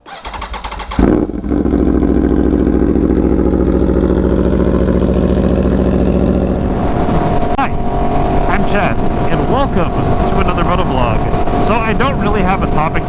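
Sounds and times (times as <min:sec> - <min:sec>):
motorcycle starter cranking: 0:00.0 - 0:02.3
motorcycle engine idling: 0:00.0 - 0:06.8.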